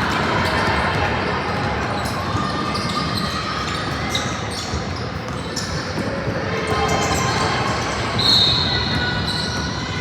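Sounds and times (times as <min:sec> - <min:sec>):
murmur of crowd chatter: 0:00.0 - 0:10.0.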